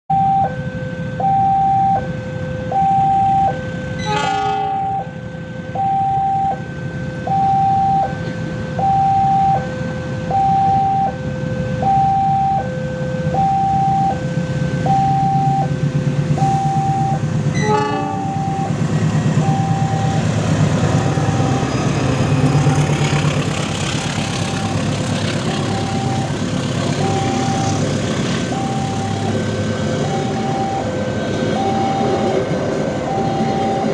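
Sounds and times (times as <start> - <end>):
level crossing two-tone signal: 0.1 - 20.3, 25.5 - 26.4, 27.0 - 27.8, 28.5 - 32.3, 33.0 - 33.9
passing train rumble: 2.0 - 33.9.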